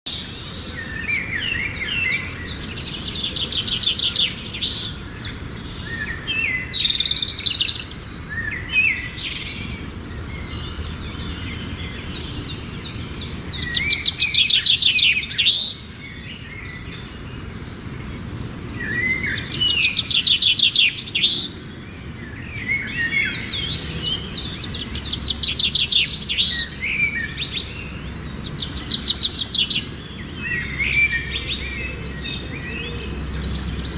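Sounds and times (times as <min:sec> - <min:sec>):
songbirds trilling and chirping: 0:00.0 - 0:33.9.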